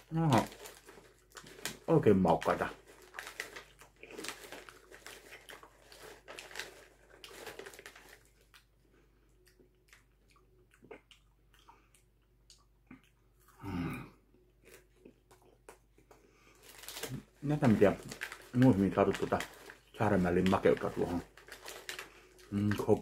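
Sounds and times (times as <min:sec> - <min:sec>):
paper bag rustling: 0:00.0 - 0:08.3, 0:16.6 - 0:23.0
chewing and crunching popcorn: 0:00.0 - 0:23.0.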